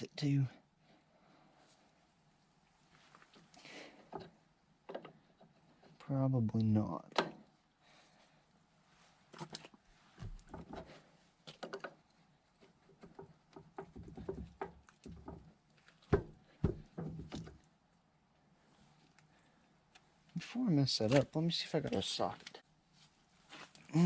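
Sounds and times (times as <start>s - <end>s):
heavy thumps: 13.8s - 17.6s.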